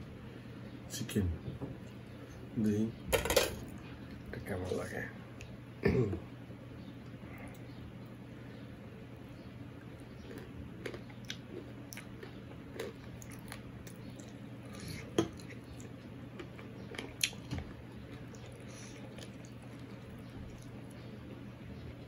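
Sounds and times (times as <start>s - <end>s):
man chewing food: 9.2s - 22.0s.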